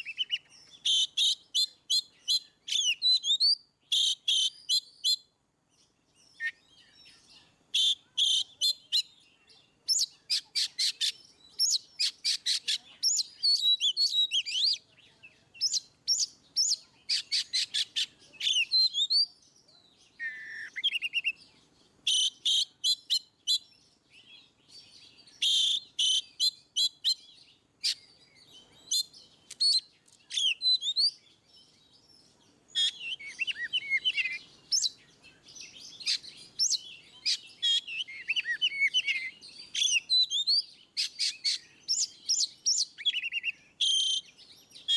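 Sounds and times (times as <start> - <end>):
magpie-robin singing: 0.0 - 44.9.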